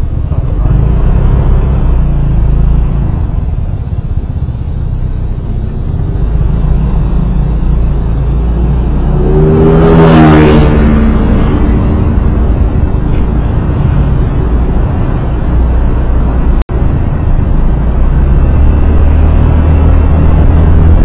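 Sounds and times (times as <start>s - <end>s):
road and engine rumble: 0.0s - 21.0s
vehicle engine passing by: 6.2s - 16.6s.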